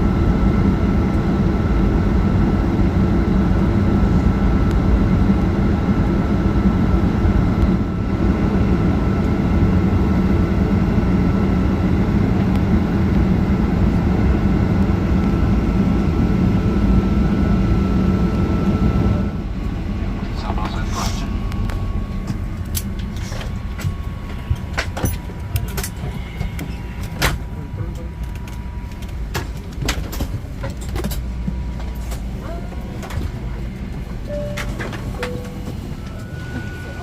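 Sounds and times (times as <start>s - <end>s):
aircraft cabin engine rumble: 0.0s - 37.0s
faint steady whine: 0.0s - 37.0s.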